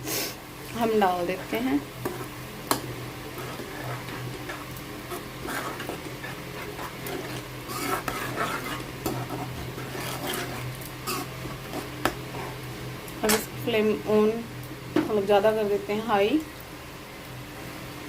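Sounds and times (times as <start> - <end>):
sauce sizzling: 0.0 - 14.8
steady low hum: 0.0 - 18.0
spoon scraping pan: 0.9 - 13.6.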